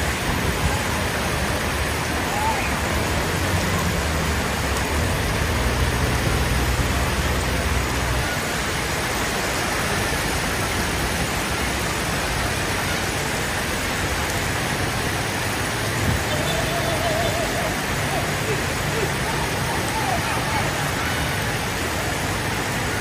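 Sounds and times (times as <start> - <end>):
vehicle engine humming: 14.0 - 23.0.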